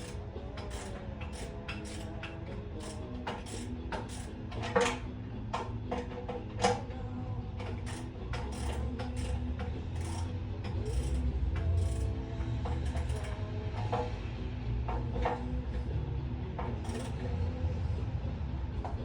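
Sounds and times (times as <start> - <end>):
metallic clinks of hand tools: 0.0 - 5.0, 7.7 - 13.5, 16.7 - 17.3.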